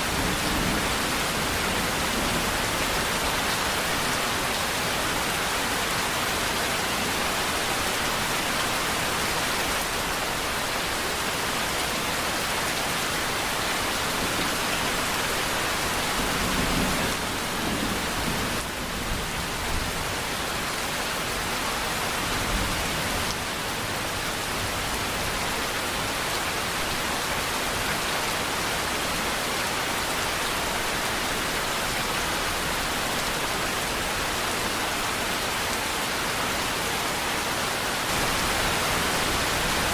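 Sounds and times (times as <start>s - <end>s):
dense rain hissing: 37.8s - 39.9s.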